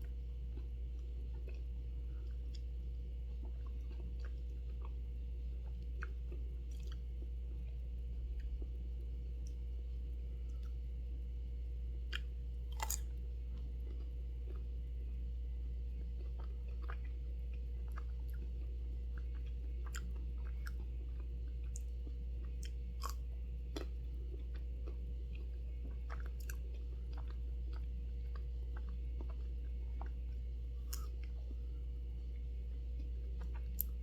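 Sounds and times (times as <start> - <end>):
chewing and biting ice cream: 0.0 - 11.0, 12.0 - 34.0
low hum: 0.0 - 34.0.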